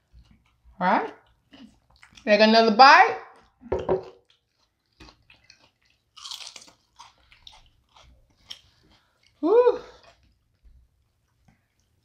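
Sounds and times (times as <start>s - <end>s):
biting and chewing taco: 0.0s - 2.3s, 4.2s - 12.0s.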